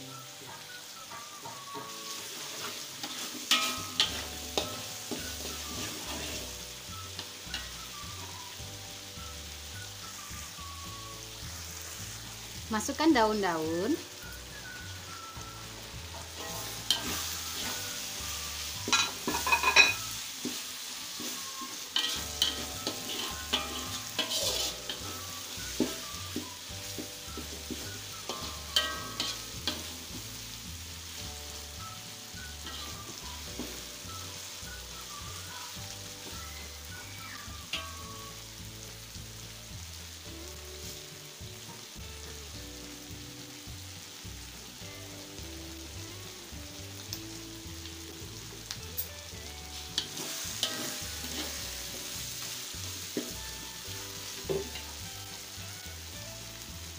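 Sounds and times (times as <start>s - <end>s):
spice paste sizzling in hot oil: 0.0s - 56.9s
metal spatula scraping a wok: 1.1s - 8.4s, 16.1s - 30.6s, 31.9s - 35.8s, 49.7s - 53.6s.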